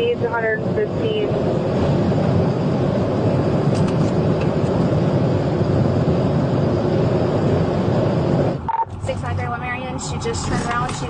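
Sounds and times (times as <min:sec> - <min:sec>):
car road wind and engine noise: 0:00.0 - 0:11.0
short beep: 0:08.7 - 0:08.9.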